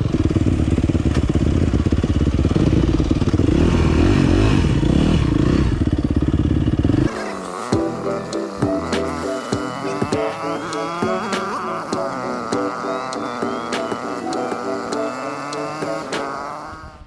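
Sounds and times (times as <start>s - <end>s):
dirt bike engine running: 0.0s - 17.0s
background music: 7.0s - 16.6s.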